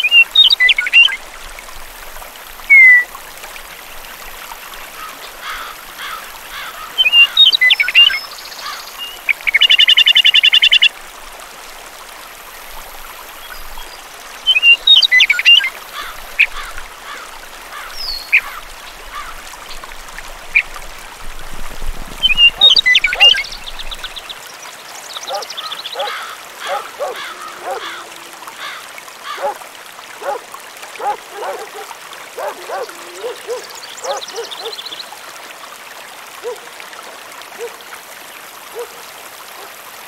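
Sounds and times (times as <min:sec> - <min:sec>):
birds chirping: 0:02.7 - 0:03.1, 0:22.2 - 0:24.4, 0:25.0 - 0:29.6, 0:31.0 - 0:35.0.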